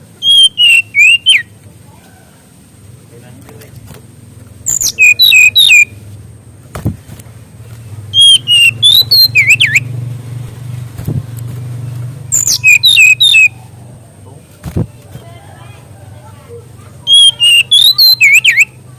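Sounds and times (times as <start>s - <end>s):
bird high whistled notes: 0.2s - 1.5s, 4.7s - 5.9s, 8.1s - 9.9s, 12.3s - 13.6s, 17.1s - 18.7s.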